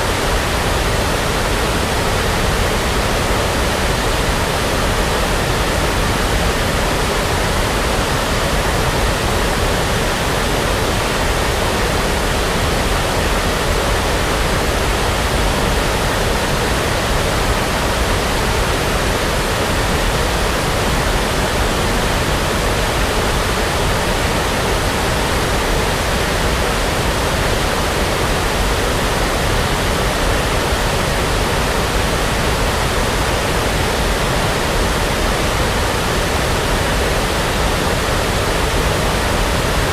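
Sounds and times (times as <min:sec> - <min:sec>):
brown noise hiss: 0:00.0 - 0:39.9.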